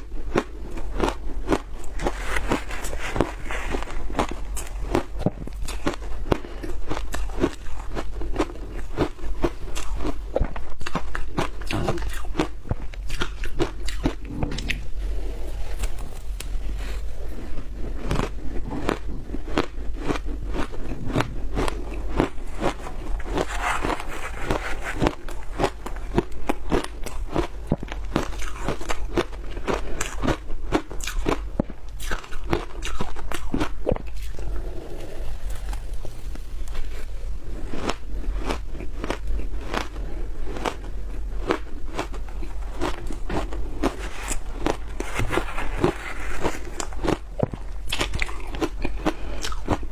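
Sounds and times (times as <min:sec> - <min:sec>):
crunchy chewing: 0:00.0 - 0:49.9.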